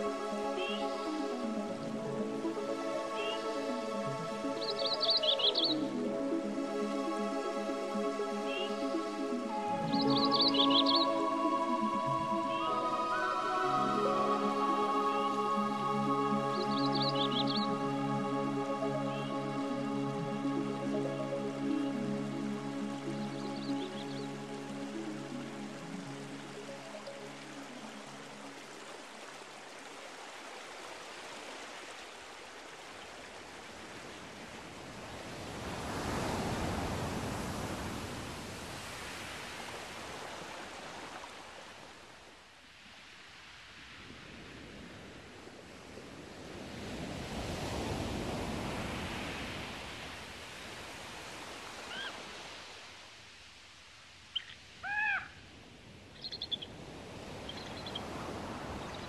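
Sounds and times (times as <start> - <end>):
short arching bird calls: 51.9 - 52.2, 54.3 - 55.4.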